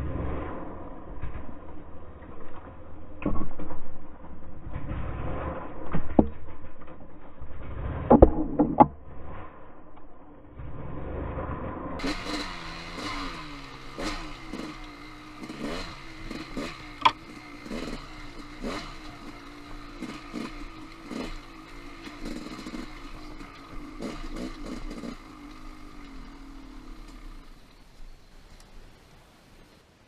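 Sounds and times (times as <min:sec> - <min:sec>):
dirt bike engine revving: 0:10.6 - 0:28.0
sharp crack: 0:12.0 - 0:27.6.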